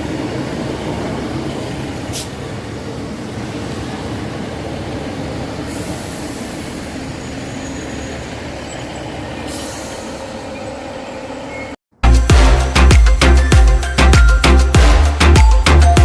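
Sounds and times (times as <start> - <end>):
train rumbling on track: 0.0 - 13.4
wheel squeals: 5.8 - 11.8.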